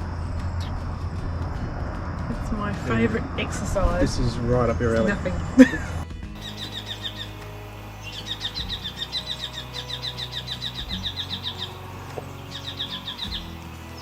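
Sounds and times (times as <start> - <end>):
bird chirping in rapid runs: 6.4 - 7.4, 8.0 - 14.0.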